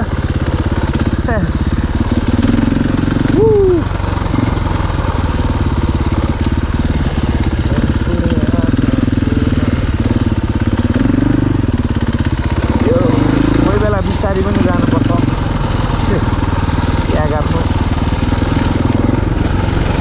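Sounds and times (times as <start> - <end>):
dirt bike engine running: 0.0 - 20.0
vocal whoop: 3.3 - 3.9.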